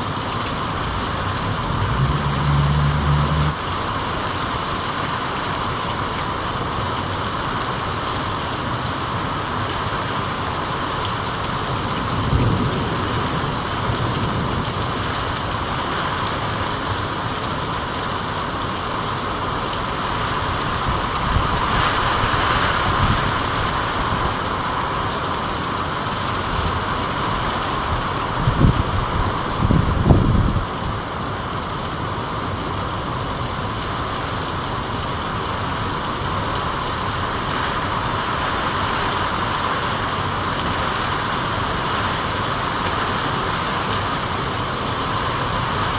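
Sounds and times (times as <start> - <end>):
rain falling: 0.0 - 45.9.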